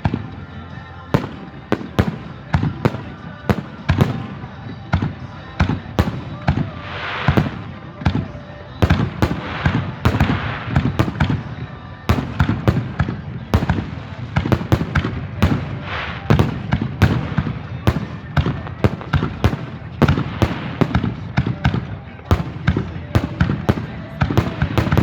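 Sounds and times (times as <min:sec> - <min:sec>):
fireworks banging: 0:00.0 - 0:25.0
fireworks hissing crackle: 0:06.1 - 0:08.3, 0:08.9 - 0:21.4.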